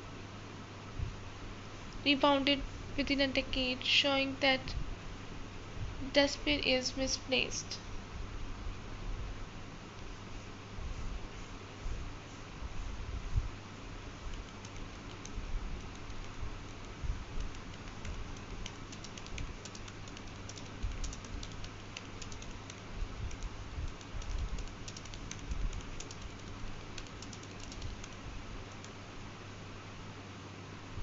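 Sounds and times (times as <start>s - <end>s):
steady low hum: 0.0s - 31.0s
keyboard key clicks: 17.4s - 29.0s.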